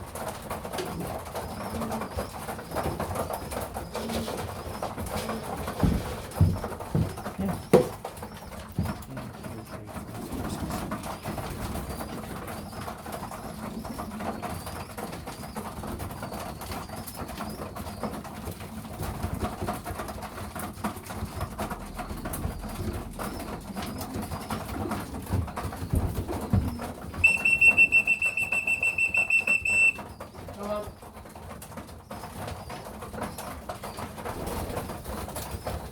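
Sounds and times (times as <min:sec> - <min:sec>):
pigeons cooing: 0:00.1 - 0:31.1
sharp knocks: 0:05.8 - 0:08.1.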